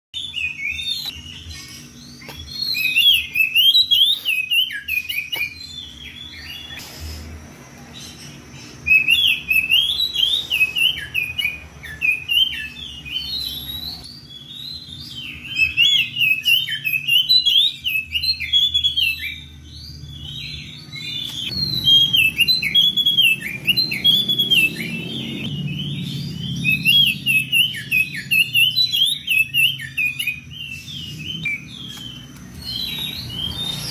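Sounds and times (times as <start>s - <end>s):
magpie-robin singing: 0.2s - 6.8s, 7.9s - 33.9s.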